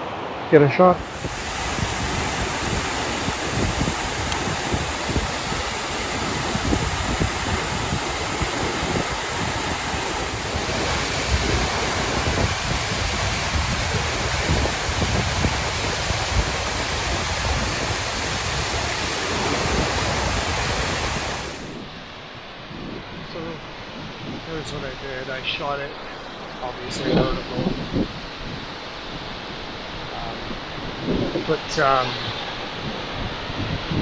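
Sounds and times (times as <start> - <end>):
waterfall rushing: 0.0 - 21.9
wind buffeting microphone: 0.9 - 34.0.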